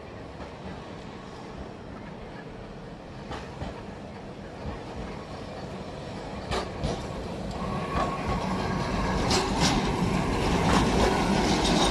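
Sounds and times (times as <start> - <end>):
tram approaching: 0.0 - 11.9
wheels clacking over rail joints: 3.2 - 11.9.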